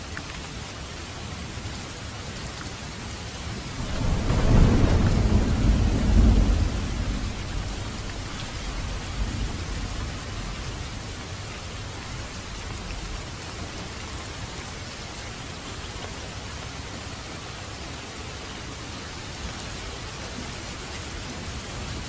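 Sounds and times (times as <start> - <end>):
steady rain falling: 0.0 - 22.0
thunder rumbling: 3.6 - 13.9.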